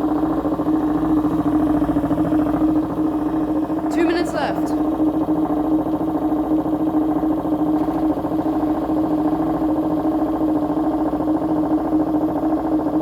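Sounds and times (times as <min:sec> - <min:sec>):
washing machine spinning: 0:00.0 - 0:13.0.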